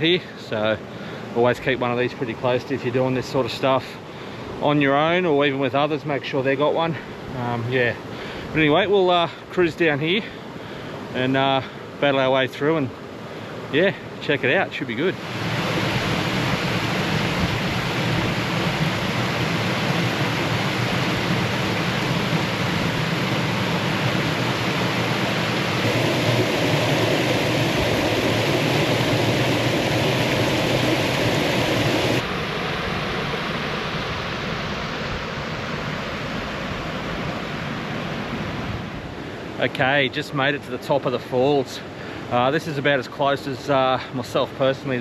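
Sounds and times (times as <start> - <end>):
creek water rushing over rocks: 15.0 - 39.8.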